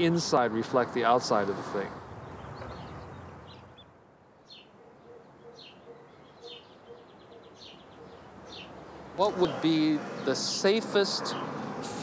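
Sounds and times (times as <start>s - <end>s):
faint outdoor hiss: 0.0s - 12.0s
bird chirping: 2.1s - 10.6s.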